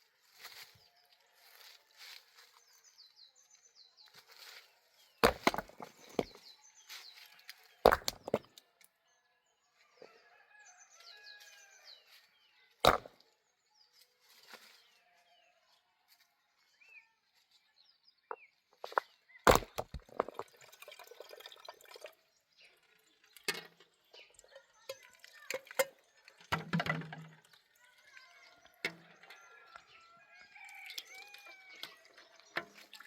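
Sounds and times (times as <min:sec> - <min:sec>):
small birds chirping: 0:16.8 - 0:33.0.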